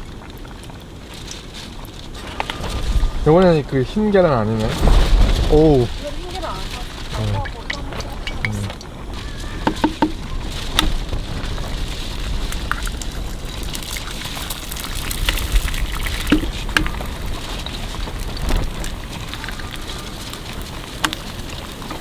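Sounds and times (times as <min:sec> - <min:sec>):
eggs sizzling in a pan: 0:05.7 - 0:22.0.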